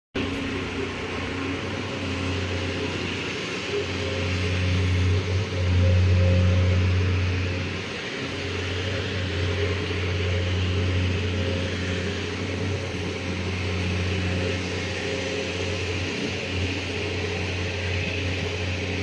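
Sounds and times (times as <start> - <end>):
diesel engine humming: 0.2 - 19.0.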